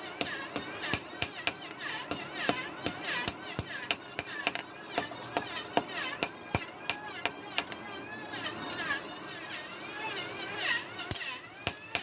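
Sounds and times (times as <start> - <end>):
tools striking metal: 0.2 - 7.8.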